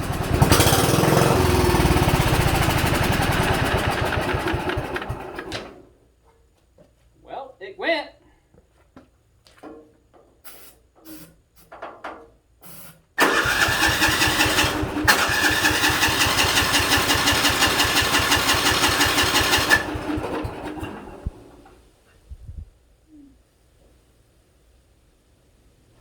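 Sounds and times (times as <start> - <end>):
engine cranking with starter: 0.0 - 5.8, 13.2 - 21.8.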